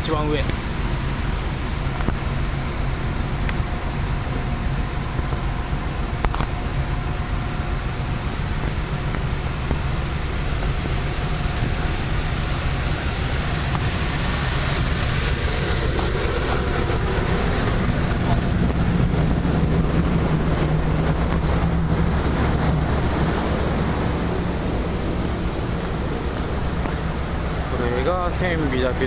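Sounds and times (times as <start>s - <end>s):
ferry machinery drone: 0.0s - 29.0s
wind on microphone: 0.0s - 29.0s.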